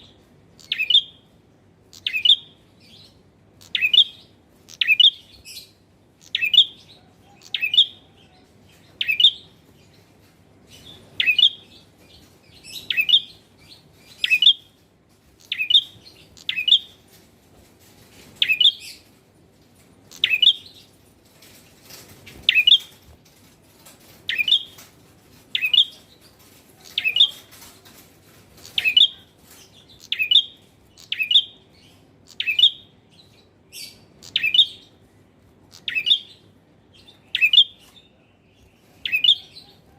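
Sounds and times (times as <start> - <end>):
bird chirping: 0.0 - 17.3, 18.2 - 19.2, 20.0 - 39.9.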